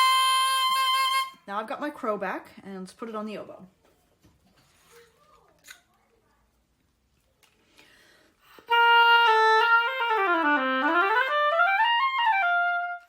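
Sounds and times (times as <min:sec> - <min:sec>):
oboe playing: 0:00.0 - 0:01.4, 0:08.5 - 0:13.0
faint handling noises: 0:03.7 - 0:08.0.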